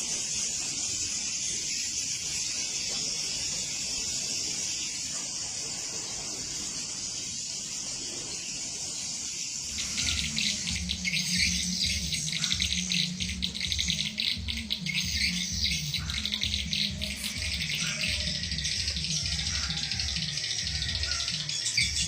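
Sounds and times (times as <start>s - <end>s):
steady hiss: 0.0s - 19.3s
swiftlets twittering: 9.6s - 22.0s
low pulsing hum: 9.7s - 22.0s.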